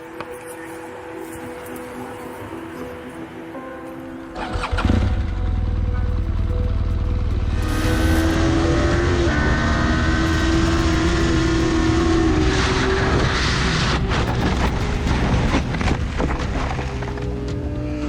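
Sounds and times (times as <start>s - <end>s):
wind rumble: 4.3s - 18.0s
motorcycle engine running: 4.5s - 17.8s.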